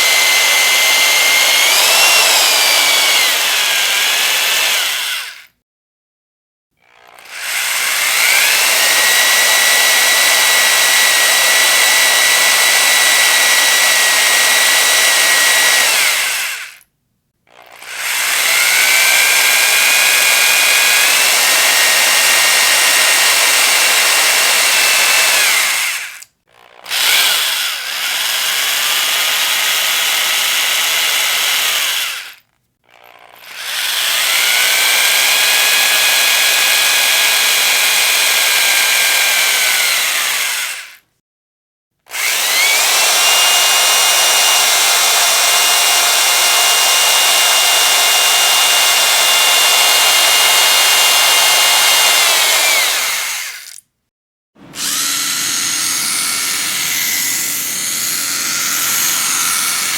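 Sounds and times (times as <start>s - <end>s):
electric power drill whining: 0.0s - 5.5s, 6.8s - 16.9s, 17.5s - 41.0s, 42.1s - 53.8s, 54.6s - 59.9s.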